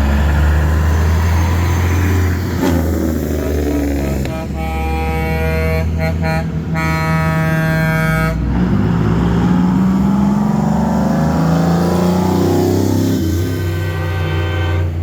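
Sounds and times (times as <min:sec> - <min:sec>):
diesel truck engine running: 0:00.0 - 0:15.0
truck air horn: 0:02.6 - 0:08.8, 0:12.8 - 0:15.0.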